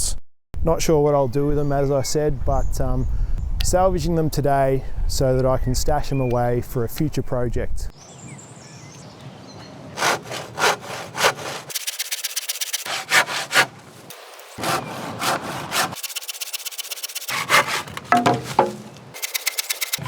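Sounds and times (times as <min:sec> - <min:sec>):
saw cutting through wood: 0:10.0 - 0:20.0.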